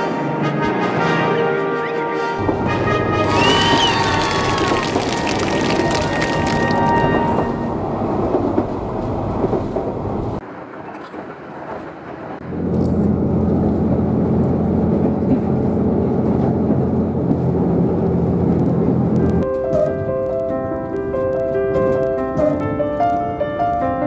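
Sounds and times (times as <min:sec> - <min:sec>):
low diesel engine drone: 0:02.4 - 0:03.6, 0:12.4 - 0:19.4
rumble of wheels on track: 0:02.4 - 0:24.0.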